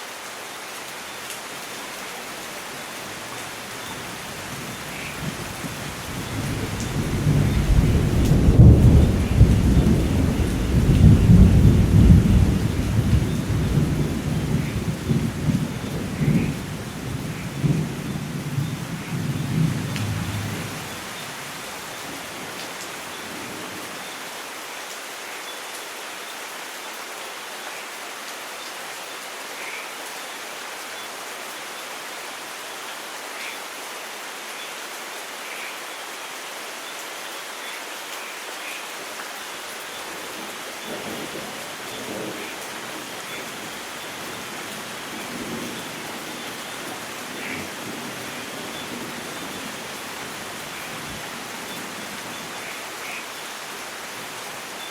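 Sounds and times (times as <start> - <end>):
steady rain falling: 0.0 - 54.9
thunder rumbling: 5.2 - 21.0.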